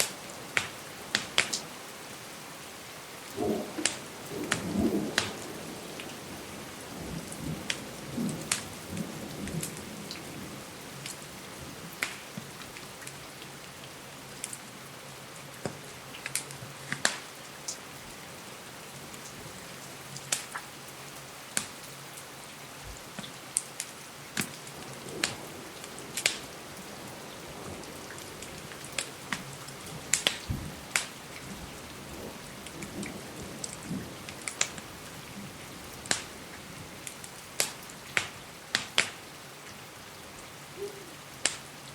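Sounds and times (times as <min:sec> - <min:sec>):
wood fire crackling: 0:00.0 - 0:01.7, 0:03.2 - 0:06.6, 0:11.9 - 0:13.2, 0:15.6 - 0:17.8, 0:19.2 - 0:20.6, 0:21.5 - 0:21.9, 0:22.9 - 0:39.2, 0:40.8 - 0:41.7
rain against a window: 0:00.0 - 0:41.9
thunder rumble: 0:03.3 - 0:10.7, 0:24.7 - 0:37.7.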